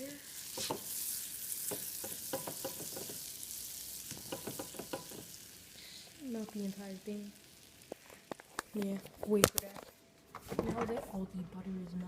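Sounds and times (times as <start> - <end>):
butter sizzling in a frying pan: 0.0 - 9.6.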